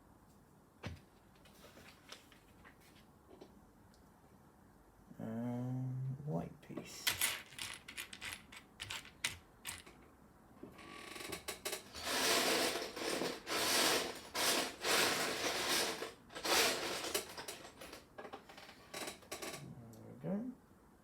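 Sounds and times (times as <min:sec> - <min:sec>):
plastic bricks rattled by hand: 0:07.3 - 0:09.8, 0:12.0 - 0:18.0.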